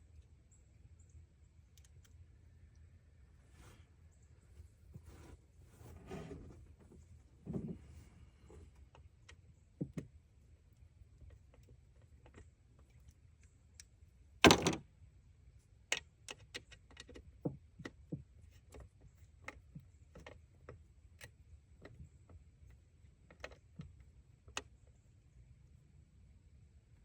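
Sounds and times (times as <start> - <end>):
small clicks and taps of hand work: 15.9 - 25.0.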